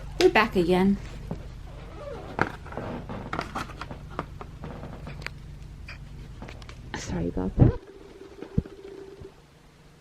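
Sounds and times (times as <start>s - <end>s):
low steady hum: 0.0s - 10.0s
packaging clicks and scrapes: 1.8s - 5.4s.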